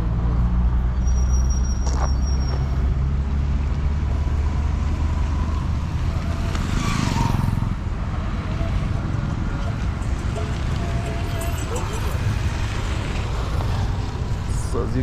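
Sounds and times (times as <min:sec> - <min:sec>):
vehicle engine running: 0:05.8 - 0:15.0.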